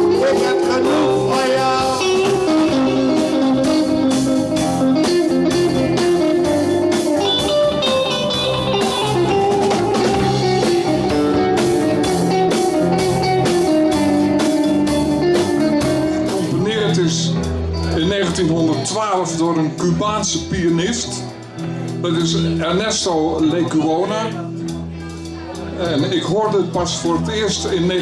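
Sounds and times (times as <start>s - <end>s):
pulsing bass line: 0.0s - 18.5s
steady drum beat: 0.0s - 18.5s
guitar melody: 0.0s - 28.0s.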